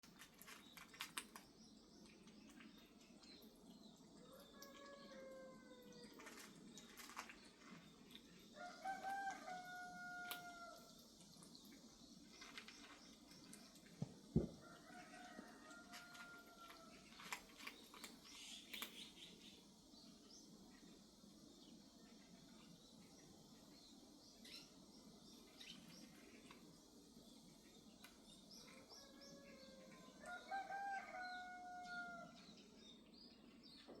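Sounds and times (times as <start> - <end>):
small birds chirping: 0.0 - 34.0
faint rooster crowing: 4.2 - 6.4, 8.5 - 11.0, 14.4 - 17.4, 28.6 - 32.6.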